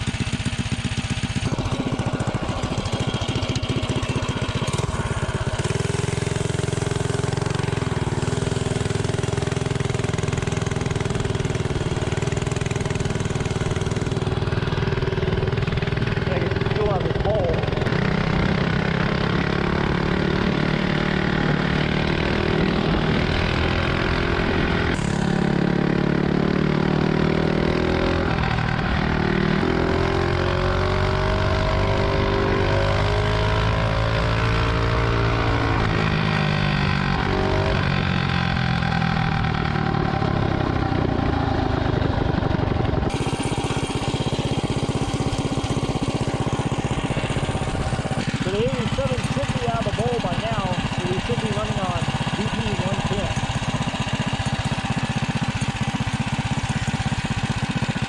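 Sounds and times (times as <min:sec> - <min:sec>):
mini bike engine revving: 0:00.0 - 0:58.0.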